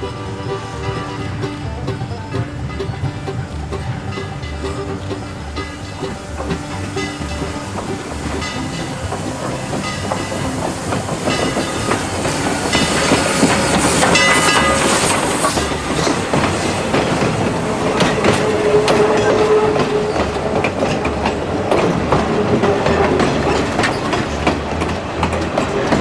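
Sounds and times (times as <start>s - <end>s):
train cars clattering: 0.0s - 26.0s
wheels clicking over rail joints: 0.0s - 26.0s.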